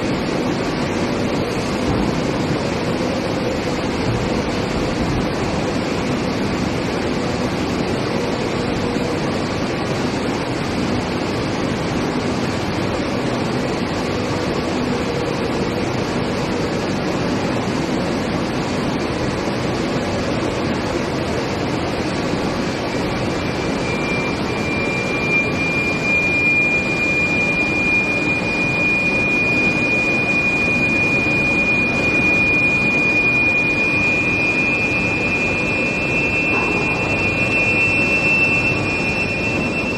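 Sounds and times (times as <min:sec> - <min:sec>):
high-pitched whine: 0:00.0 - 0:39.9
steady industrial noise: 0:00.0 - 0:39.9
higher second whine: 0:23.4 - 0:39.9.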